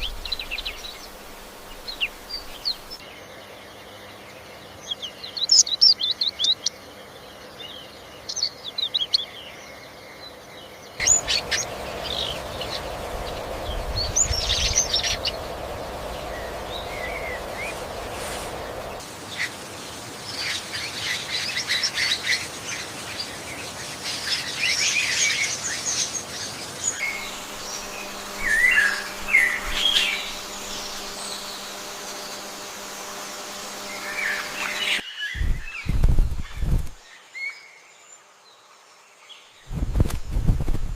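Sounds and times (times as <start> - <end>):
background hiss: 0.0 - 9.3, 11.0 - 40.9
birds chirping and trilling: 0.0 - 38.6
low rumble: 11.0 - 19.0.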